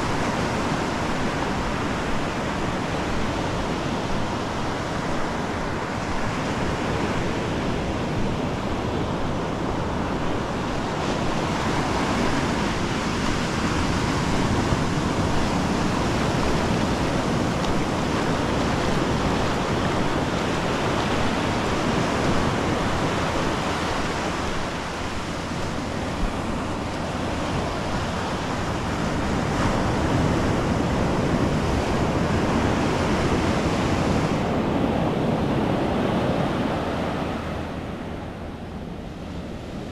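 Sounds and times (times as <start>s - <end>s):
ocean surf breaking: 0.0s - 39.9s
wind buffeting microphone: 0.0s - 39.9s.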